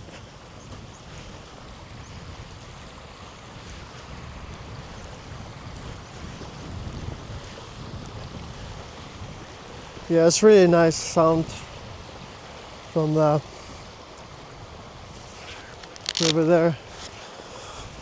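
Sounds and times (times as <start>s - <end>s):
wind noise on microphone: 0.0s - 18.0s
river water rushing: 7.6s - 18.0s.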